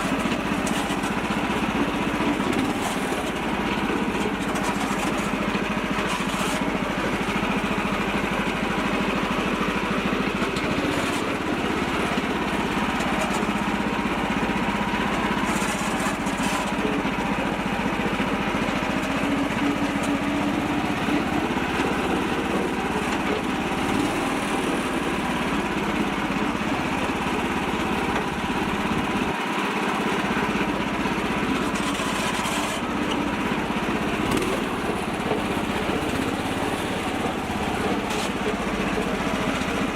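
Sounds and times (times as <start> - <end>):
small tractor engine running: 0.0 - 39.9.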